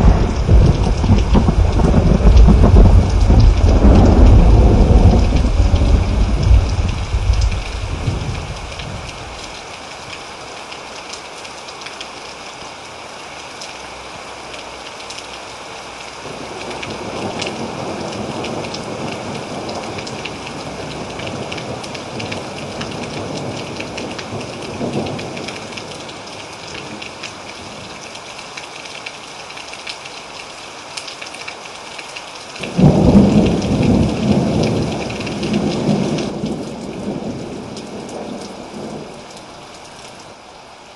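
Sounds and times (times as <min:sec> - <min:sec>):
loud thunderclap: 0:00.0 - 0:09.1, 0:32.7 - 0:37.5
thunder rumbling: 0:00.0 - 0:09.5, 0:32.6 - 0:39.2
rain hiss: 0:00.0 - 0:40.9.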